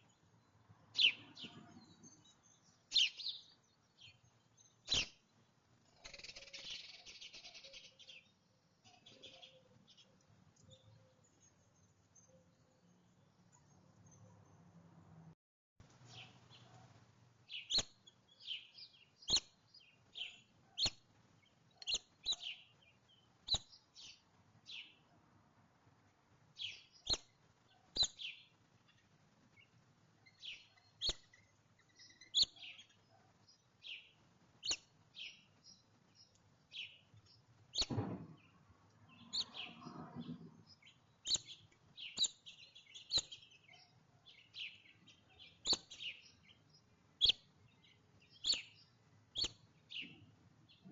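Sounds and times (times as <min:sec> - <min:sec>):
songbirds chirping: 0:00.0 - 0:50.9
thump: 0:37.8 - 0:38.5.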